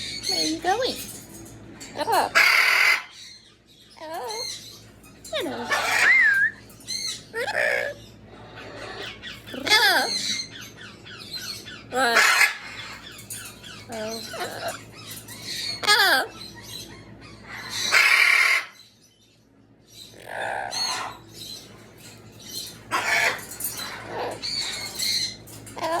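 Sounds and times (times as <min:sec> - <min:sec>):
parrot squawking and whistling: 0:02.0 - 0:03.2, 0:05.3 - 0:10.7, 0:13.7 - 0:18.8, 0:20.1 - 0:21.2, 0:22.8 - 0:26.0.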